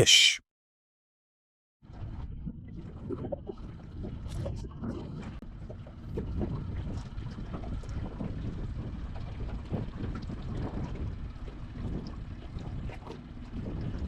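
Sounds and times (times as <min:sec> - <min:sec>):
small boat engine rumble: 0:01.9 - 0:14.0
wind buffeting microphone: 0:02.8 - 0:14.0.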